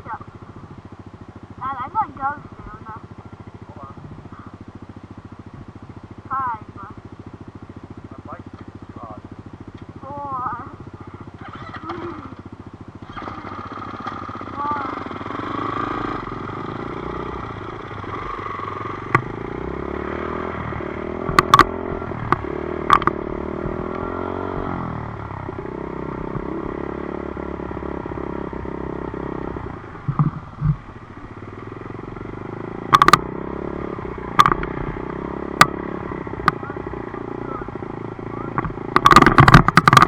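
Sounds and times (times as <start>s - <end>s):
dirt bike engine: 0.0s - 40.0s
sharp clicks and knocks: 19.1s - 19.4s, 21.2s - 24.0s, 30.0s - 30.9s, 32.9s - 33.3s, 34.3s - 35.8s, 38.5s - 40.0s.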